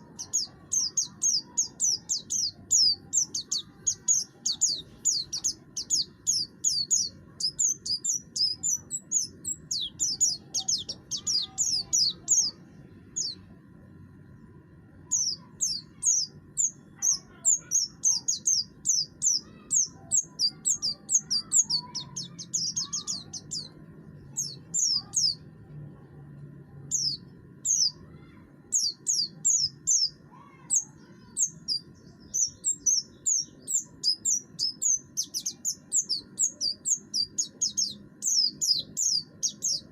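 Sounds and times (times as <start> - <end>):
bird singing harsh chirps: 0.0 - 13.5, 15.0 - 25.5, 26.9 - 39.9.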